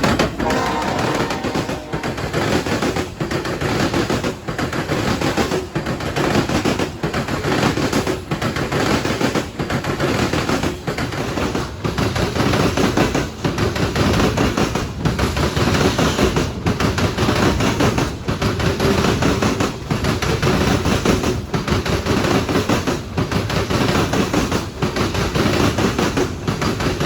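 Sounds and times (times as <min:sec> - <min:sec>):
train wheels clattering over rails: 0:00.0 - 0:27.0.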